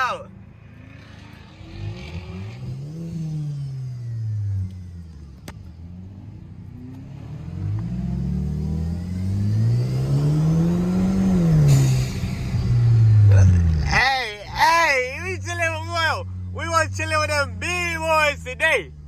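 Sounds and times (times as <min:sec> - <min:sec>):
car engine accelerating: 0:00.3 - 0:19.0.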